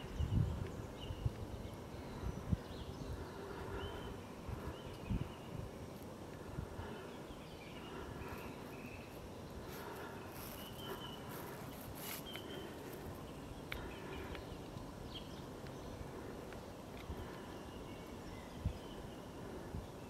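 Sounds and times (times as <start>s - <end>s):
faint clicks: 13.6s - 14.9s.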